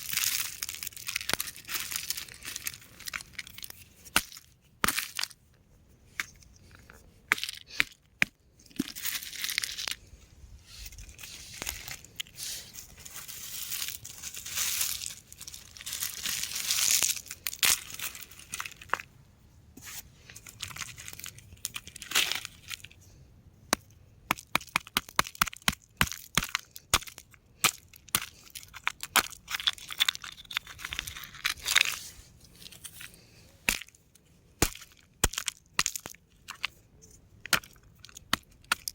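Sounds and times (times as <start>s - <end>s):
rock crumbling and crunching: 0.0s - 5.4s, 23.7s - 38.9s.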